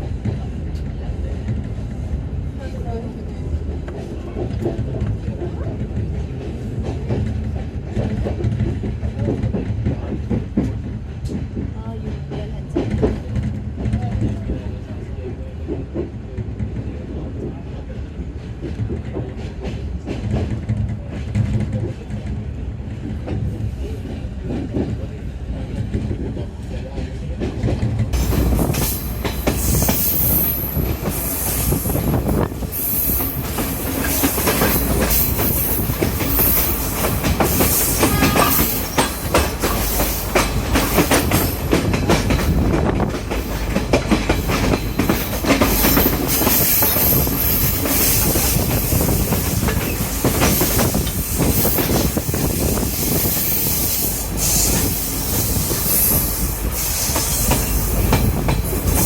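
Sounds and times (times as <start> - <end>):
train rumble: 0.0 - 59.0
train wheels clattering over joints: 25.6 - 59.0.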